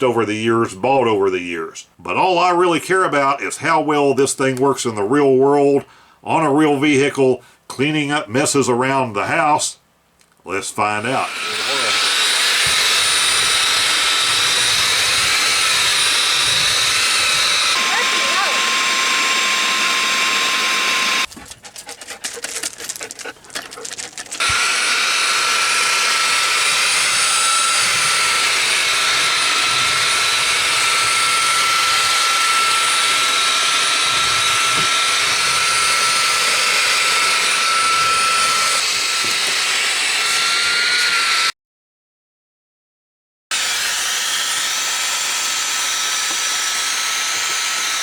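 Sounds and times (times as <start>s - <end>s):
handheld vacuum whining: 11.0s - 21.3s, 23.3s - 41.5s, 43.5s - 48.0s
irregular clicks and rattles: 21.3s - 24.4s.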